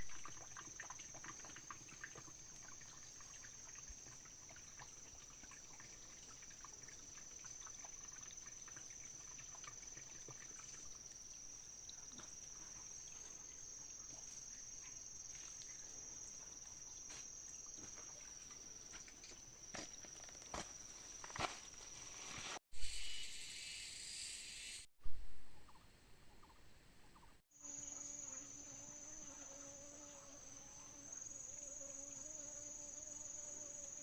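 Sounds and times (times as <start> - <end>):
insects trilling high-pitched: 22.8 - 24.9, 27.6 - 34.0.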